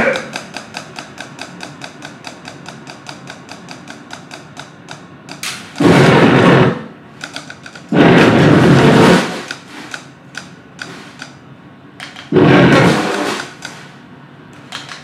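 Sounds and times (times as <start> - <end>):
fast even ticking: 0.0 - 6.2, 7.2 - 11.4
blasts of harsh noise: 5.4 - 7.0, 7.9 - 10.0, 12.3 - 13.9.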